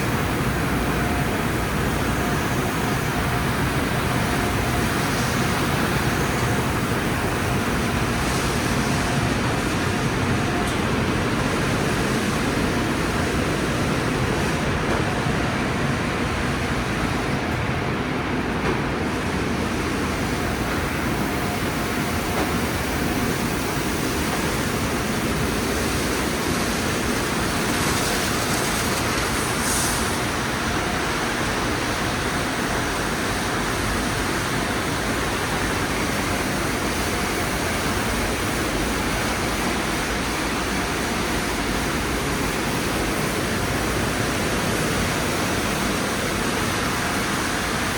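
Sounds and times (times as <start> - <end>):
car wash spraying water: 0.0 - 47.9
sharp hiss: 27.4 - 30.4.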